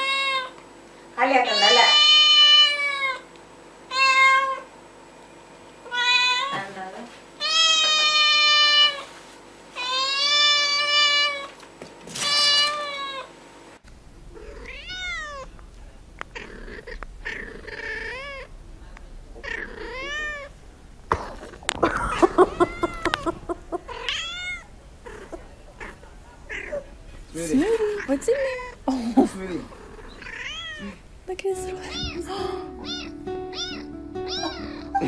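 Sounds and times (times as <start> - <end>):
kittens meowing: 14.3 - 15.6, 16.2 - 18.5, 19.4 - 20.5, 21.1 - 26.9, 29.6 - 31.1, 31.7 - 35.0.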